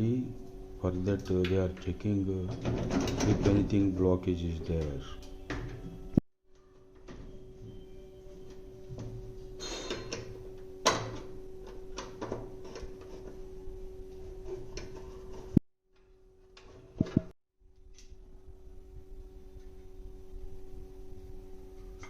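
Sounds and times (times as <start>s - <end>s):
steady hum: 7.0s - 22.0s.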